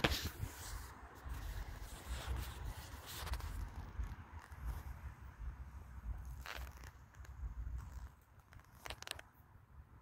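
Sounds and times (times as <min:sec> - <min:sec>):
footstep crunch on stony ground: 0:06.1 - 0:09.4.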